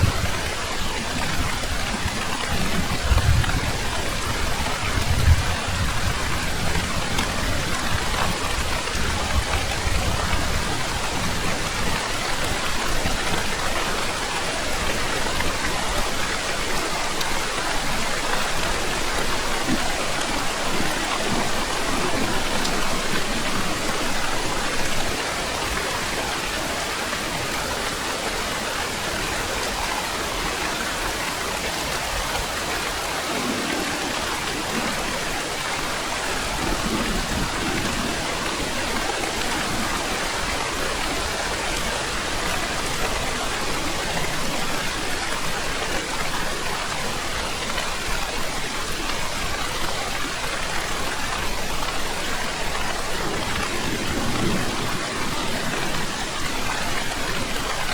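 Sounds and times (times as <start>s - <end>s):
thunder rumble: 0.0s - 13.6s
heavy rain: 0.0s - 57.9s.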